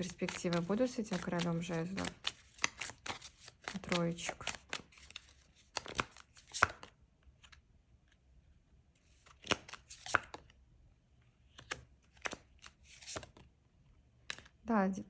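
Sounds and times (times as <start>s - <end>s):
cards swishing and tapping: 0.0s - 7.6s, 9.2s - 10.5s, 11.5s - 13.4s.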